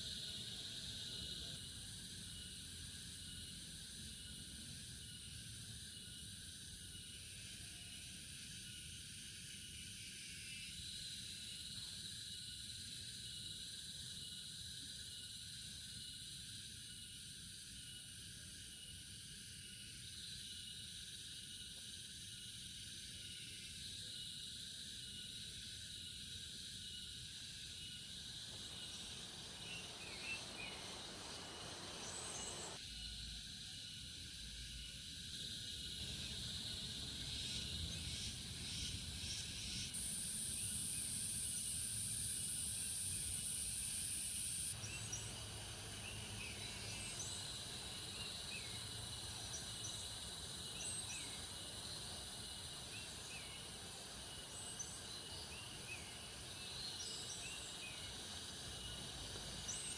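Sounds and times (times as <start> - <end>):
high insect drone: 0.0 - 59.9
insects chirring: 0.0 - 59.9.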